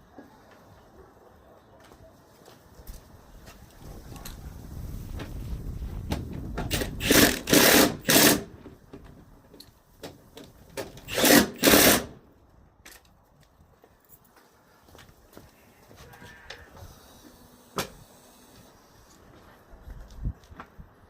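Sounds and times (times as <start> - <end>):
power tool bursts: 6.7 - 8.5, 11.1 - 12.2.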